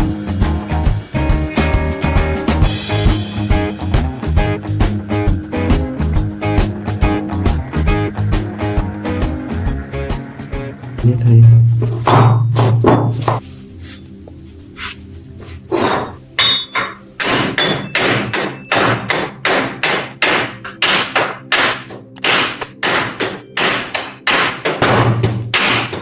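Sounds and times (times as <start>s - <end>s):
hammer blows: 2.9s - 13.5s, 15.7s - 26.0s.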